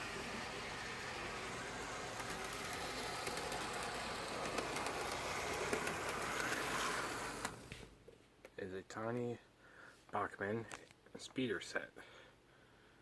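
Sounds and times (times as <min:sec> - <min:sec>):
train rolling rumble: 0:00.0 - 0:07.5
scattered clicks: 0:01.6 - 0:07.6.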